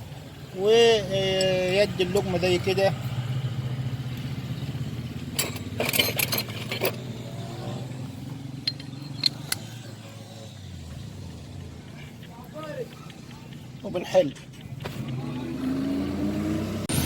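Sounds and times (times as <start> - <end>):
socket wrench clinking on metal: 5.3 - 7.2, 8.6 - 9.8.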